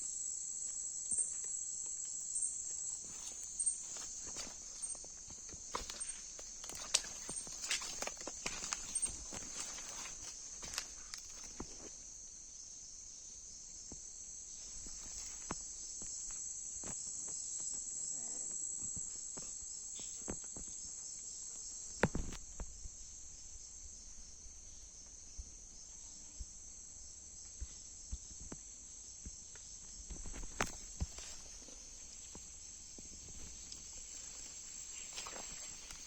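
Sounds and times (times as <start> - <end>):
high-pitched insect chorus: 0.0 - 36.0.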